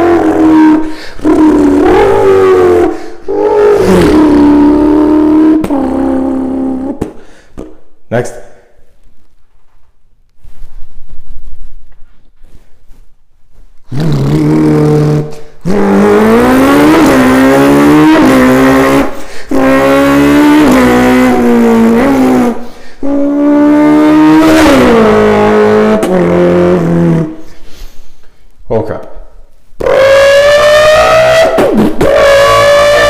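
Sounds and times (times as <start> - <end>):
person imitating car engine: 0.0 - 7.2, 13.9 - 27.4, 29.8 - 33.0.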